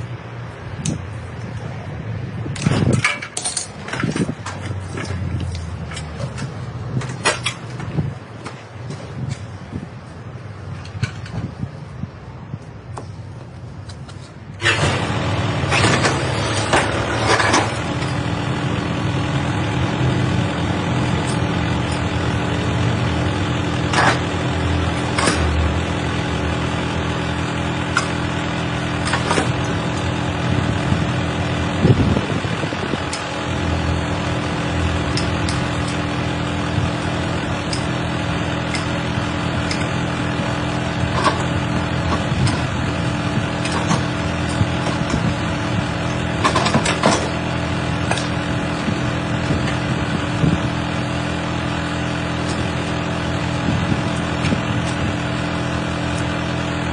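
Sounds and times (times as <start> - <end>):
heavy machine engine running: 0.0 - 56.9
metal knocks and clanks: 2.6 - 9.1.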